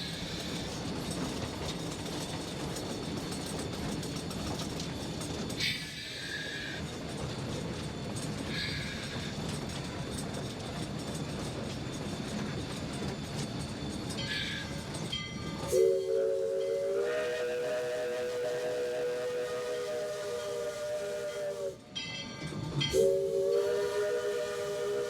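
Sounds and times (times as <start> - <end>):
steam locomotive rumble: 0.0 - 25.0
steam whistle chord: 15.7 - 21.8, 22.9 - 25.0.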